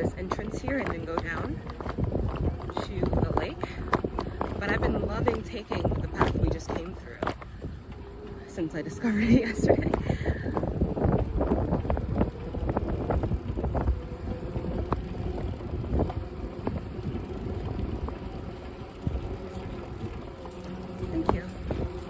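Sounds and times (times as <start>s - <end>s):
bicycle clicks and rattles: 0.0s - 22.0s
wind rumbling on microphone: 0.0s - 22.0s.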